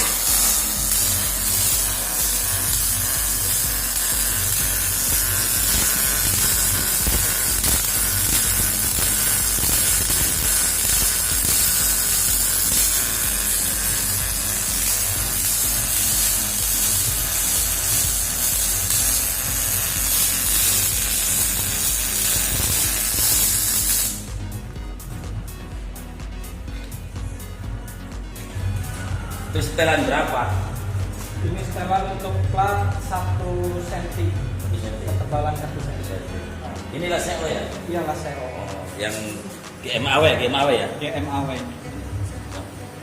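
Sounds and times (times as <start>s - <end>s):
welder crackling sizzle: 0.0s - 24.4s.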